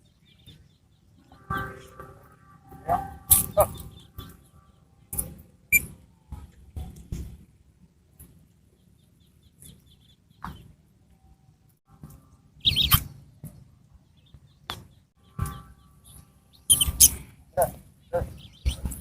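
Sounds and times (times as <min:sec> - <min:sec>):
pet bird chirping: 0:03.2 - 0:06.0, 0:12.6 - 0:13.2, 0:14.2 - 0:19.0.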